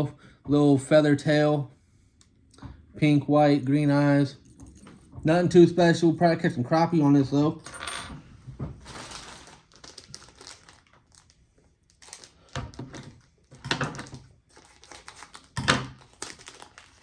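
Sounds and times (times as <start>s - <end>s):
plastic packaging crinkling: 8.8s - 17.0s.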